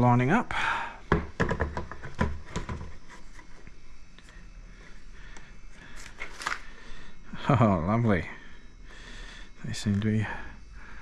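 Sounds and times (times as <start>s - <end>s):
plastic case knocks and clicks: 1.1s - 2.9s.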